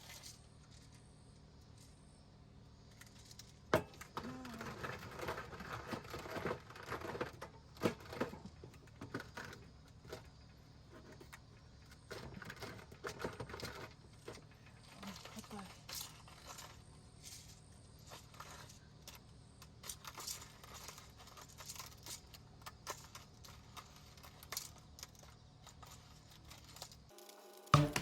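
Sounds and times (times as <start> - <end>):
small objects clicking: 14.8 - 28.0.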